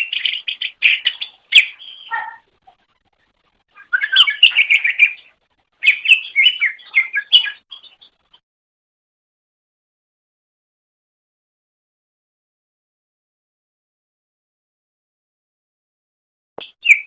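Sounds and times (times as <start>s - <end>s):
bird chirping song: 0.0s - 8.4s, 16.6s - 17.0s.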